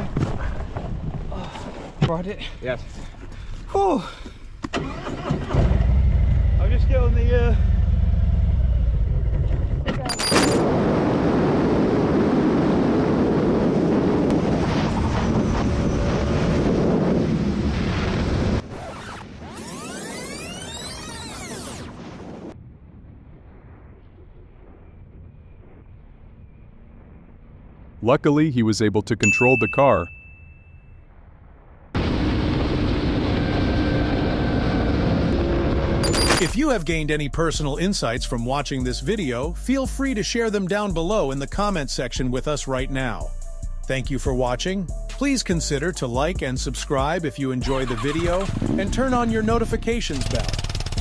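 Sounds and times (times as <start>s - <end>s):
loud vehicle roar: 4.8s - 10.1s, 32.0s - 36.3s
wind noise on microphone: 9.3s - 28.0s.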